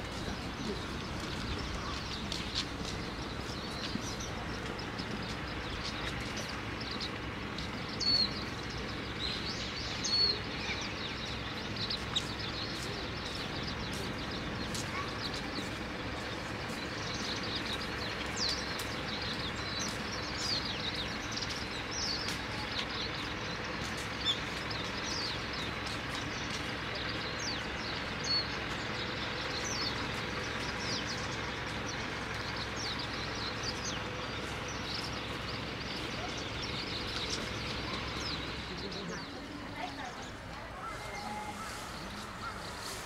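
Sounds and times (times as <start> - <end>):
outdoor background noise: 0.0 - 43.0
small birds chirping: 0.0 - 43.0.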